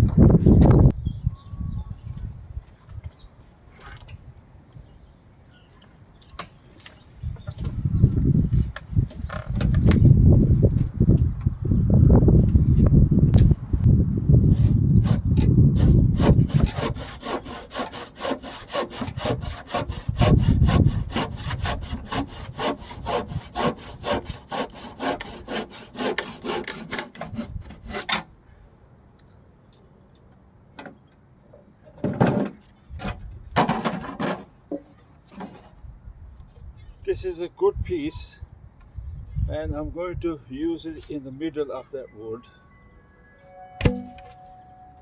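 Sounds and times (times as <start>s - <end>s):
hand saw cutting timber: 14.4s - 28.3s.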